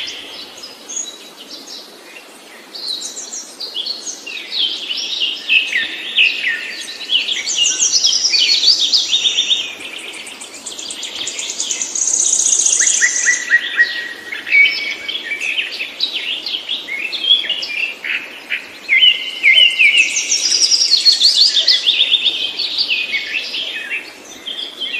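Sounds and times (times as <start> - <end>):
songbird trilling and chirping: 5.3 - 17.8, 18.6 - 24.9.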